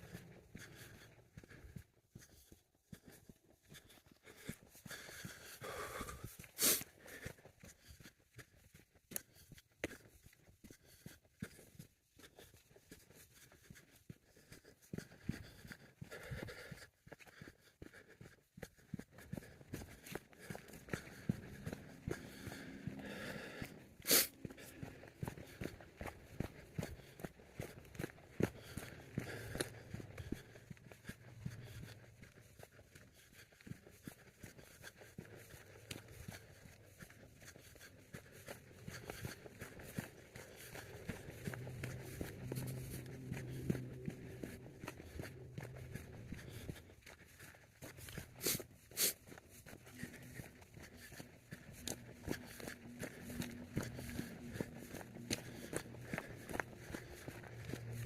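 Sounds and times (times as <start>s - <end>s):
footsteps on gravel: 20.3s - 30.5s, 40.4s - 47.0s, 47.9s - 58.0s.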